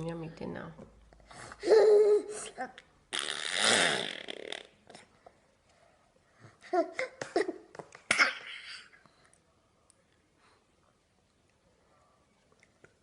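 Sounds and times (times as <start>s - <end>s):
baby making throaty noises: 6.6s - 9.0s.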